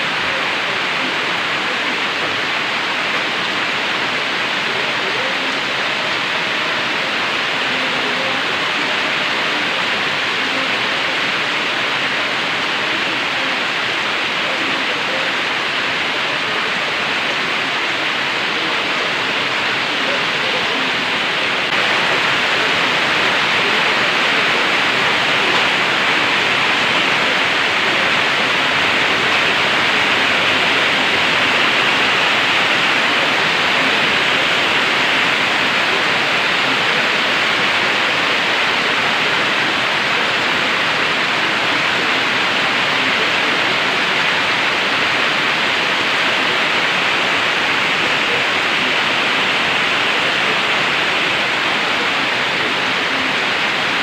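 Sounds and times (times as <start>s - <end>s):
heavy rain hissing: 0.0s - 54.0s.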